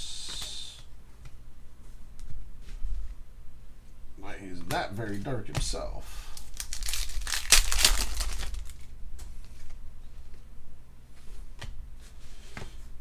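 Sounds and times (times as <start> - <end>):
plastic wrapper crinkling: 6.4 - 8.9.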